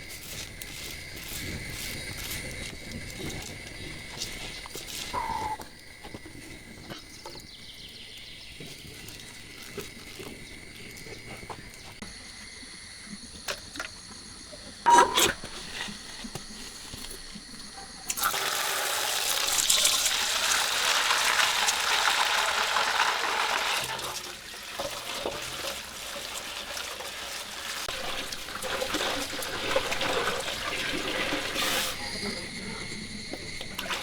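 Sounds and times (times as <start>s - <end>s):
water running and splashing: 18.1s - 32.6s.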